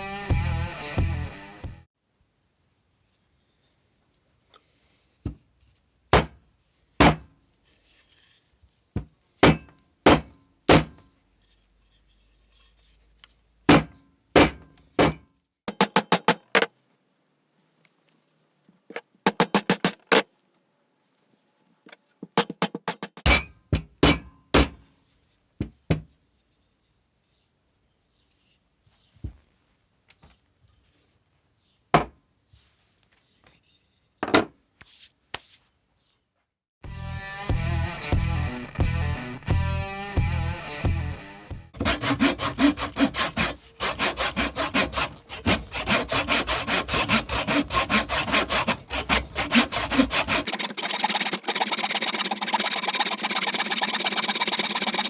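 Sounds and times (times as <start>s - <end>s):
hammer striking metal: 15.7s - 16.7s, 19.3s - 20.2s, 22.3s - 23.3s.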